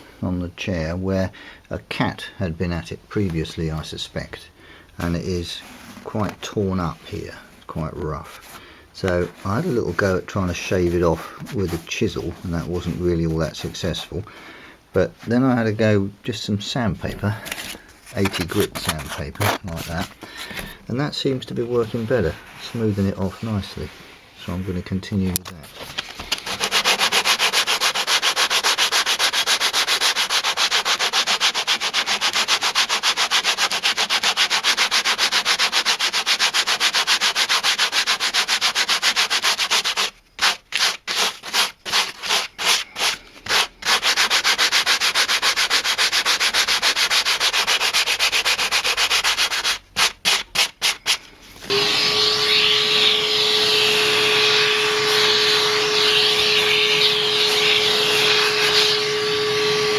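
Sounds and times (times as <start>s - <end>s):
sandpaper rubbing leather: 26.3s - 59.7s.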